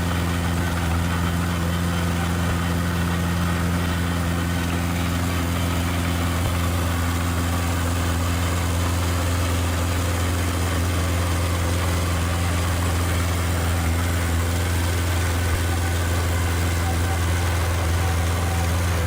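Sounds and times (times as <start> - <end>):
heavy machinery diesel engine: 0.0 - 19.0.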